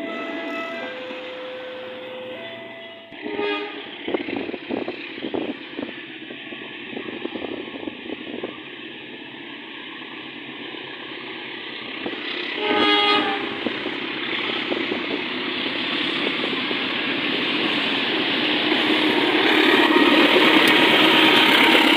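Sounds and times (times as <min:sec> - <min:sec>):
train horn blast: 0:00.0 - 0:03.9, 0:12.5 - 0:13.8, 0:18.6 - 0:21.9
train running noise: 0:00.0 - 0:21.9.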